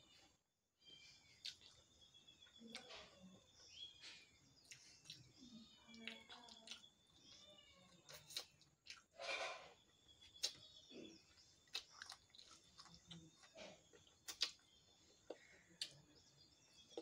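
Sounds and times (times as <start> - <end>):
wet mouth clicks and smacks: 14.2 - 14.7.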